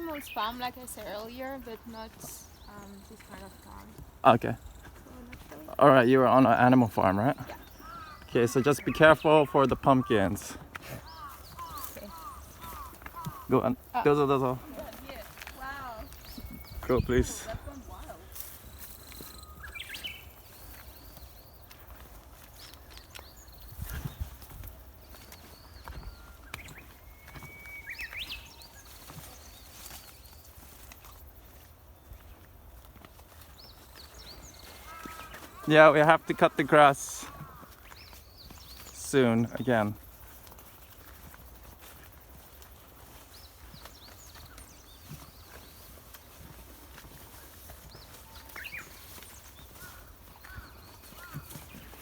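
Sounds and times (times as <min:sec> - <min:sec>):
high chirping calls: 0:00.0 - 0:22.0, 0:25.0 - 0:30.4
birds singing: 0:00.0 - 0:52.0.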